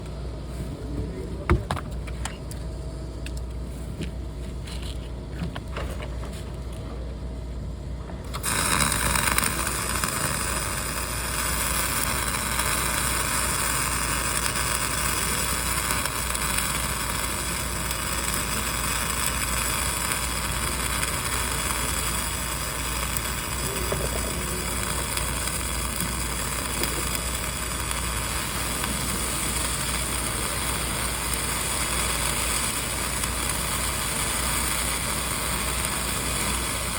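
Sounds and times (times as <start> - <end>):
low steady hum: 0.0 - 31.8
welding arc crackling hiss: 8.2 - 36.9.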